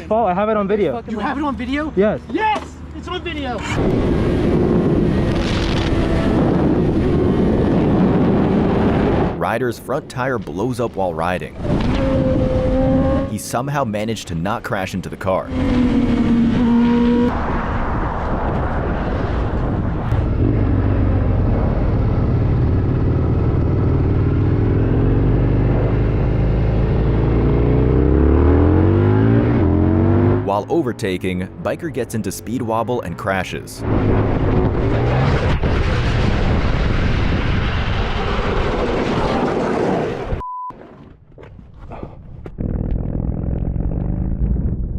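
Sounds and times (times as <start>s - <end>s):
rushing wind: 3.2s - 10.1s, 11.4s - 13.4s, 15.4s - 30.5s, 33.6s - 40.4s
motorcycle riding at speed: 3.6s - 9.4s, 11.4s - 13.5s, 15.2s - 31.6s, 33.8s - 41.0s, 41.9s - 44.9s
low engine hum: 15.5s - 30.5s, 42.4s - 44.9s.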